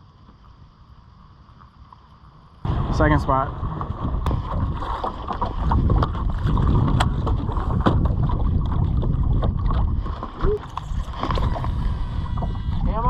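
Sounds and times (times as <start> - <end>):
wind buffeting microphone: 2.6 - 13.0
boat knocks and clicks: 3.8 - 10.6.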